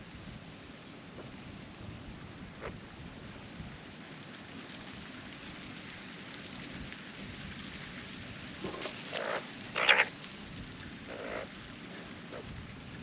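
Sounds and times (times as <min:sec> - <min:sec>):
wind noise: 0:06.6 - 0:13.0
magpie calls: 0:08.8 - 0:10.2, 0:11.1 - 0:11.5.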